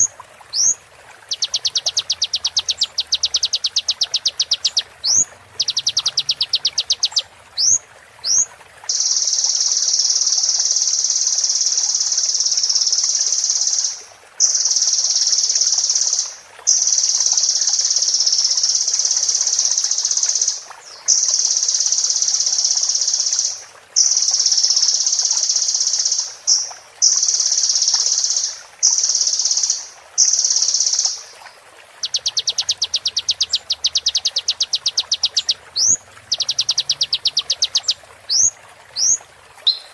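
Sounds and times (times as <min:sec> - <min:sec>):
bird singing trills: 0:00.0 - 0:18.7, 0:32.0 - 0:39.9.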